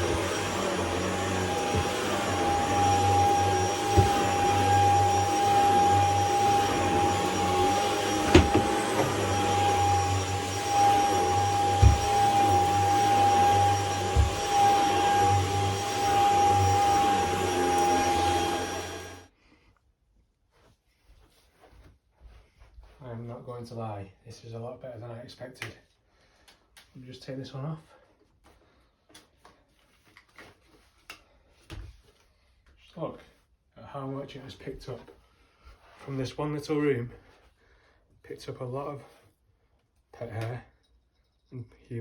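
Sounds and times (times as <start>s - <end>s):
vacuum cleaner whining: 0.0s - 19.3s.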